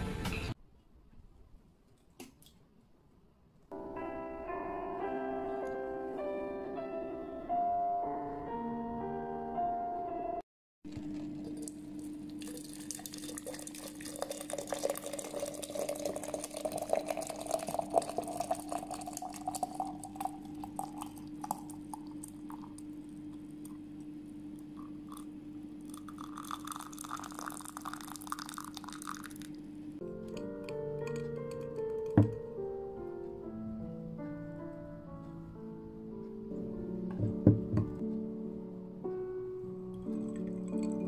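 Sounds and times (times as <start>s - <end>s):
liquid pouring into container: 10.9s - 23.9s, 24.6s - 29.6s, 40.1s - 41.0s.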